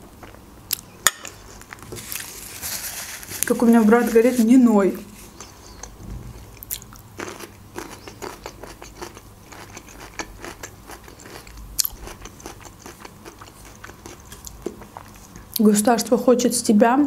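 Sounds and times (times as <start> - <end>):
chewing crunchy food: 5.2 - 15.7.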